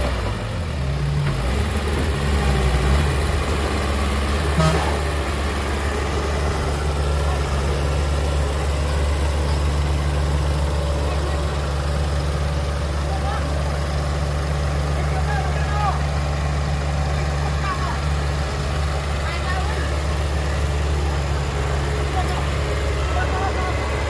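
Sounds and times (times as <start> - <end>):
heavy diesel engine running: 0.0 - 24.0
engine knock: 1.3 - 24.0.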